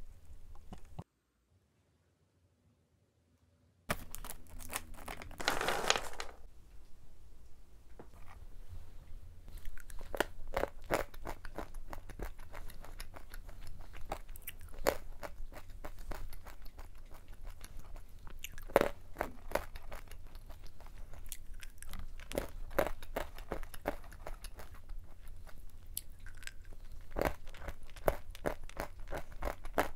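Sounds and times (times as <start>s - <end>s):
almonds being crunched: 3.9s - 6.5s.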